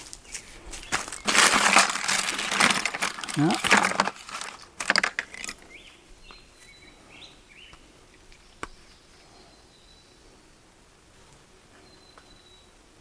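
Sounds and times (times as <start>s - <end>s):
rustling handling noises: 0.0s - 5.8s.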